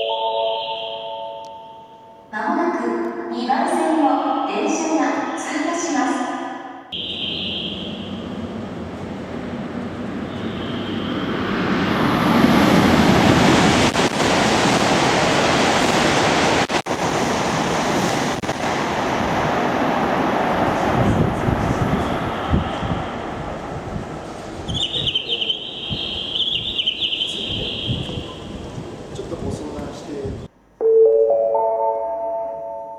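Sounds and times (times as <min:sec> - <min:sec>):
high-speed train passing: 0:00.0 - 0:30.8.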